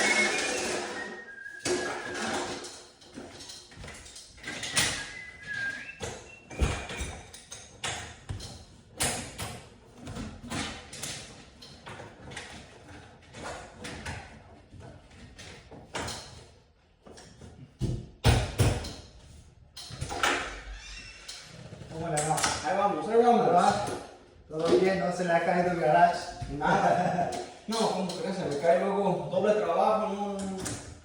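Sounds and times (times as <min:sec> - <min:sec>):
brief squeak: 0:20.5 - 0:21.6.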